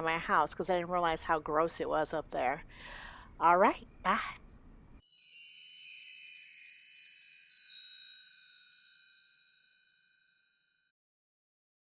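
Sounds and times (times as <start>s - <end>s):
bell-like chime tones: 5.0s - 10.9s.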